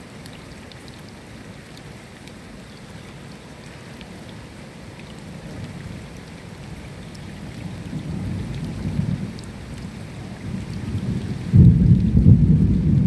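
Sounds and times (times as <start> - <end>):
steady rain: 0.0 - 13.0
raindrop ticks: 0.2 - 13.0
low thunder rumble: 7.4 - 13.0.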